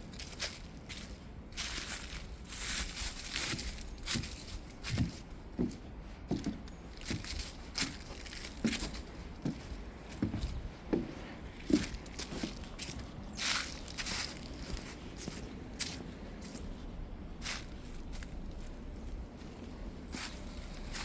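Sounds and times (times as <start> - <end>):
footsteps crunching on dry ground: 0.0 - 21.0.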